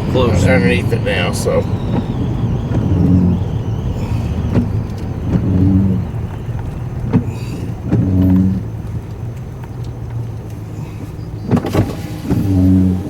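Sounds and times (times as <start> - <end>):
car road and engine noise: 0.0 - 13.0
low hum: 0.0 - 13.0.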